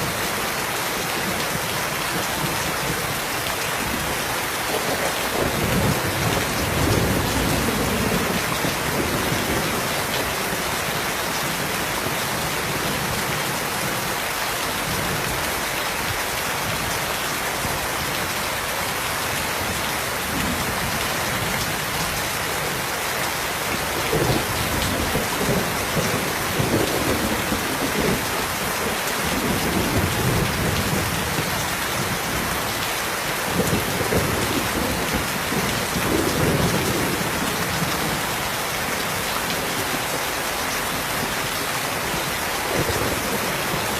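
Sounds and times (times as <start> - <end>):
steady rain falling: 0.0 - 43.9
rolling thunder rumbles: 3.9 - 10.6.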